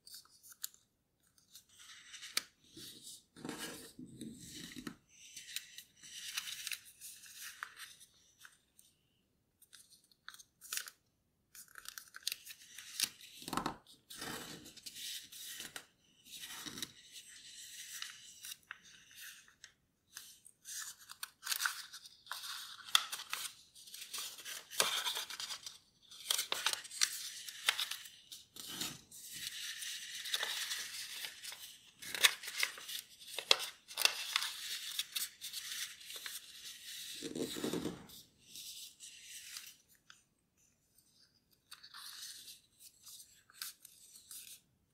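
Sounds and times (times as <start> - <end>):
paper rustling and crinkling: 0.0 - 8.6, 20.1 - 40.2.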